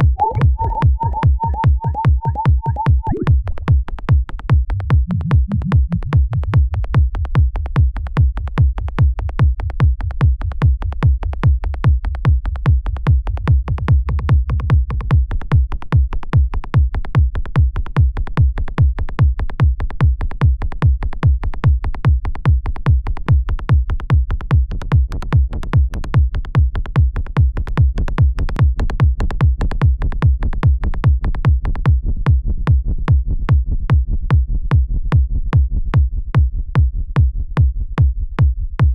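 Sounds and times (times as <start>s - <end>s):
synth bassline: 0.0s - 4.0s, 4.6s - 6.9s
synthesized kick drum: 0.0s - 38.9s.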